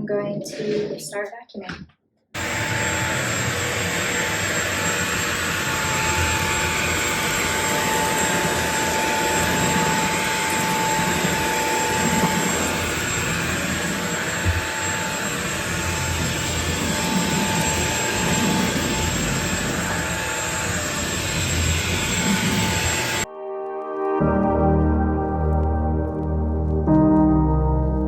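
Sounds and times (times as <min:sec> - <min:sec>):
high motor whine: 0:02.4 - 0:23.3
vacuum cleaner running: 0:02.4 - 0:23.3.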